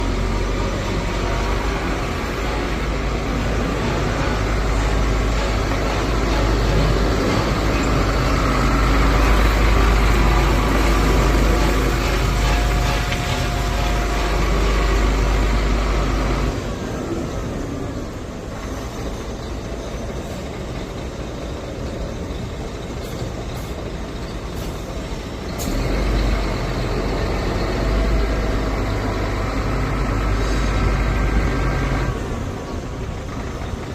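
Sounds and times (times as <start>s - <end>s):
truck engine rumbling: 0.0s - 33.9s.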